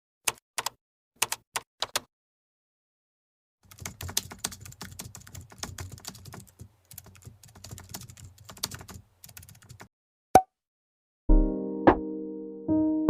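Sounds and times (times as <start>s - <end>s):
keyboard typing: 0.3s - 2.1s, 3.7s - 9.9s.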